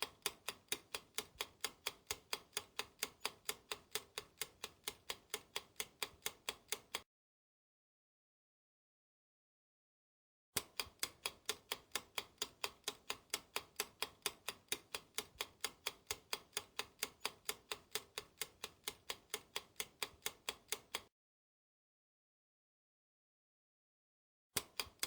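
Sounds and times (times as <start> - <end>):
clock ticking fast: 0.0 - 7.0, 10.6 - 21.1.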